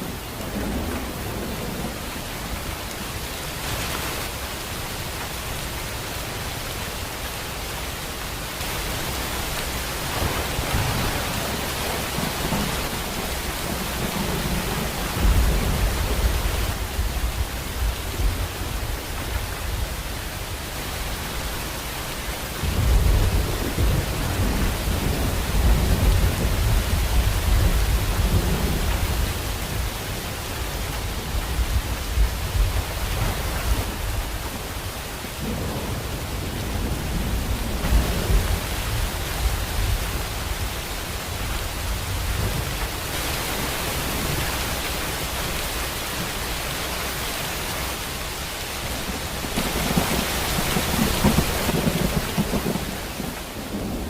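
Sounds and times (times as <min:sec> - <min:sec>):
thunder rumbling: 0:00.0 - 0:03.1, 0:09.6 - 0:19.9, 0:22.6 - 0:44.4, 0:48.8 - 0:54.0
heavy rain: 0:00.0 - 0:54.0.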